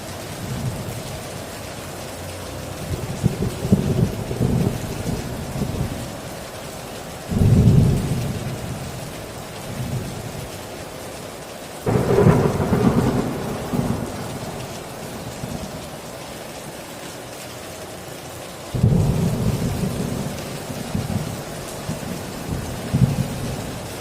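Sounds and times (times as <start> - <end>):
heavy rain on a tin roof: 0.0 - 24.0
thunder rumbling: 2.8 - 6.2, 7.3 - 9.1, 11.9 - 16.8, 18.7 - 24.0.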